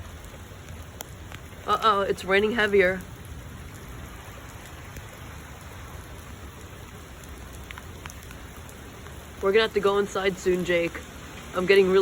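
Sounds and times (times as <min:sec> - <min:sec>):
heavy rain pattering: 0:00.0 - 0:12.0.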